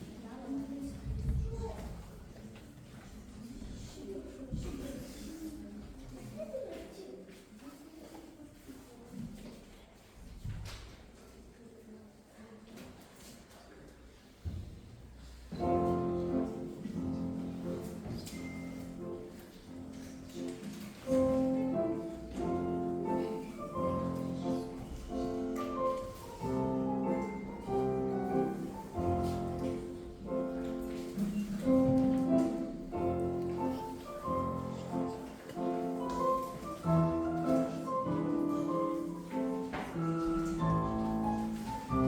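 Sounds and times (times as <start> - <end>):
classical piano music: 15.5 - 42.0.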